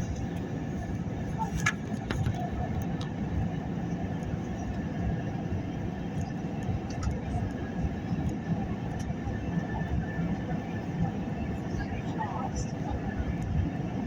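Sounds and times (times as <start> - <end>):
airliner landing rumble: 0.0 - 14.0.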